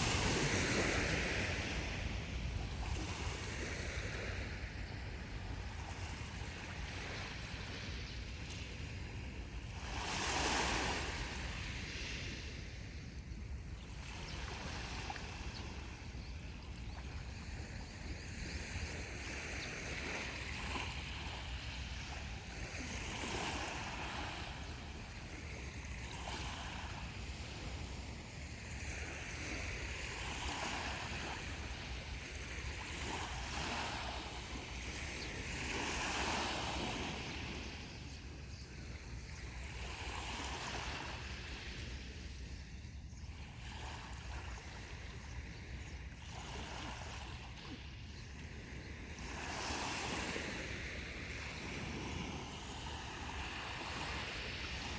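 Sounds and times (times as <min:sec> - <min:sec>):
sea waves breaking on beach: 0:00.0 - 0:04.8, 0:05.7 - 0:12.7, 0:16.8 - 0:37.9, 0:48.5 - 0:54.9
wind rumble on microphone: 0:00.0 - 0:38.9.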